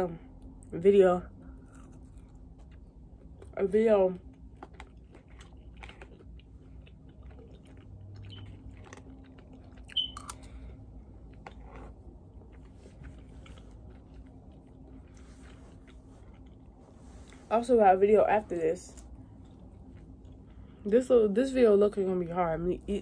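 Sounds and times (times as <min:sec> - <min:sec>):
person chewing: 0:01.4 - 0:17.5, 0:19.0 - 0:20.8.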